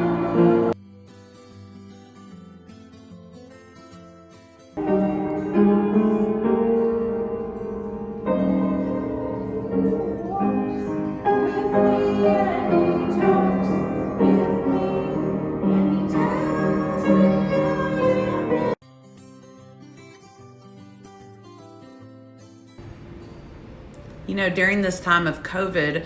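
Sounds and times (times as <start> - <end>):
piano music: 0.0 - 0.8, 4.8 - 18.8
thin keyboard music: 0.0 - 0.8, 4.8 - 18.8
women singing: 11.2 - 18.8.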